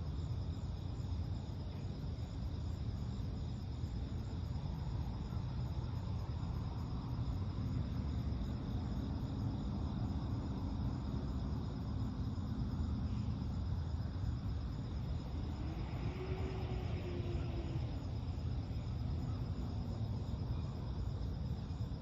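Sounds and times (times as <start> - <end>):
crickets chirping: 0.0 - 22.0
faint low hum: 0.0 - 22.0
low rumble: 6.6 - 20.9.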